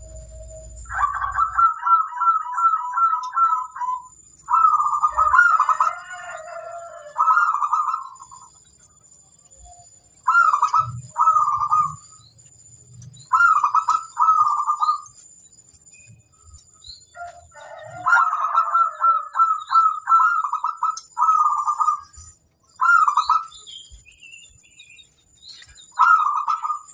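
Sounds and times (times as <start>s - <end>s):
dove cooing: 0.0s - 8.6s, 10.3s - 12.1s, 13.3s - 15.0s, 17.2s - 22.2s, 22.8s - 23.6s, 26.0s - 26.9s.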